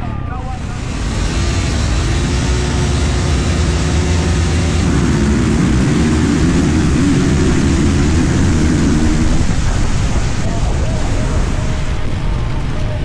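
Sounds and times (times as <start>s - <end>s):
dirt bike engine revving: 0.6s - 10.7s.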